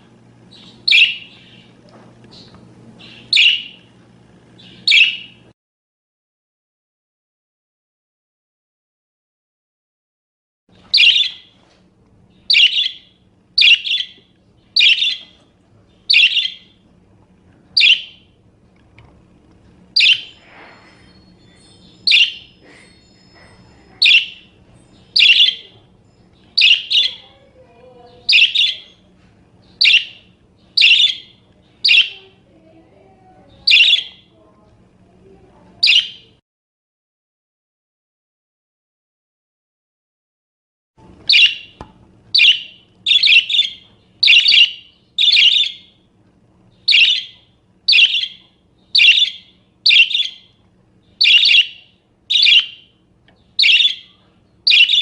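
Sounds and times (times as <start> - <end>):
parakeet chirping: 0.5 - 3.8, 4.6 - 5.4, 10.9 - 11.5, 12.3 - 16.8, 17.8 - 18.4, 19.9 - 32.3, 33.6 - 34.3, 35.8 - 36.3, 41.3 - 46.0, 46.7 - 55.0.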